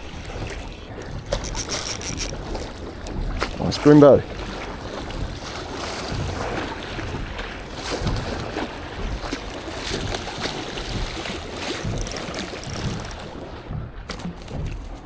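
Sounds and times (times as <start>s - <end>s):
knocks and rustles: 11.0s - 15.0s.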